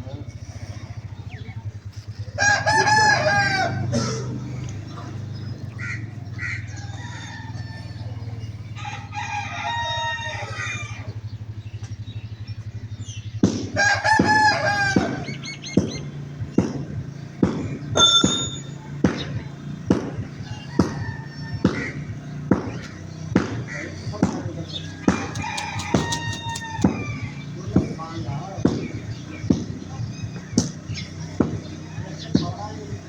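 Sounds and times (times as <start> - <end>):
steady low hum: 0.0 - 18.0
rooster crowing: 2.3 - 4.4, 5.8 - 11.2, 13.8 - 15.4, 20.4 - 22.2, 24.8 - 27.7.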